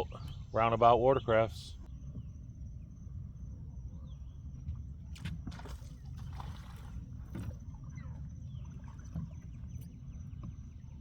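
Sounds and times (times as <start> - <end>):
water lapping against boat hull: 4.7 - 11.0.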